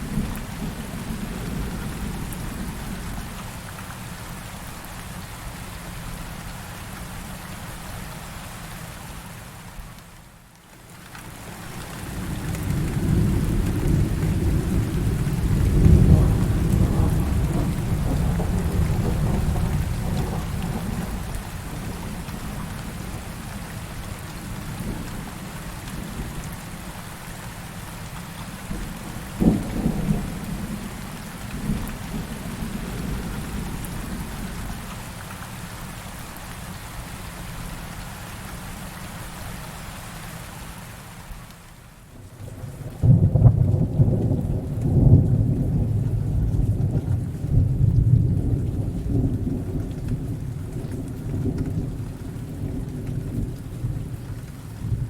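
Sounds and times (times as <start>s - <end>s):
heavy rain: 0.0s - 55.0s
rolling thunder rumble: 11.7s - 26.5s, 28.7s - 34.8s, 42.3s - 55.0s
sharp thunderclaps: 12.2s - 21.9s, 28.7s - 34.3s, 43.0s - 50.8s.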